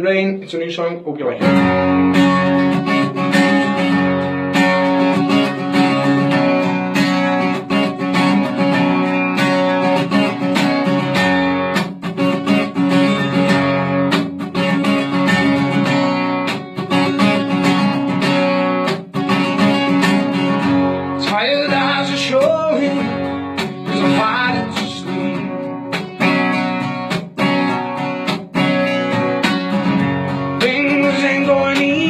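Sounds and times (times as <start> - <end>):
guitar strumming chords: 1.3 - 32.0.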